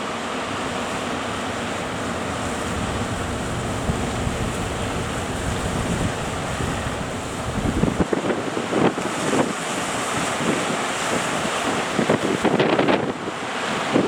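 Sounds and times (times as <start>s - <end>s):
surf washing: 0.0s - 14.0s
wind buffeting microphone: 0.4s - 14.0s
low rumble: 0.5s - 8.1s.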